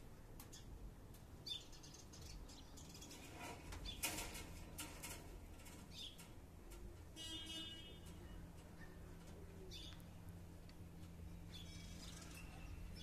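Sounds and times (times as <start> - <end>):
crackling rustles: 2.2 - 7.2
bird chirps: 11.5 - 13.0.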